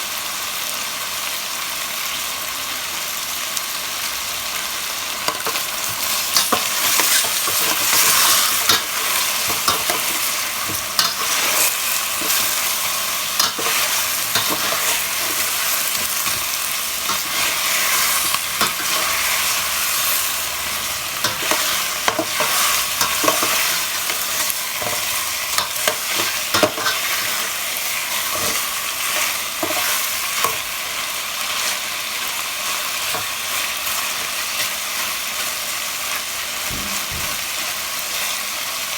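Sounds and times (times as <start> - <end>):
chicken sizzling in hot oil: 0.0 - 38.9
spatula scraping and knocking pan: 5.3 - 20.1, 21.2 - 27.6, 28.2 - 30.7.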